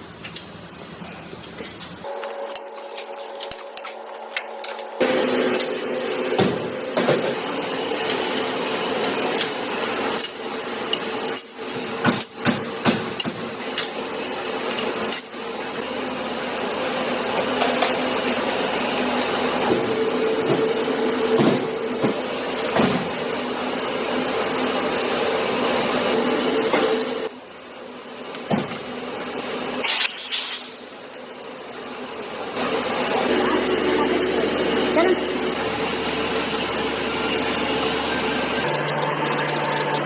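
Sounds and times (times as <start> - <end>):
steady machine hum: 0.0 - 28.0, 31.2 - 40.0
metallic tool knocks and clinks: 4.3 - 14.0.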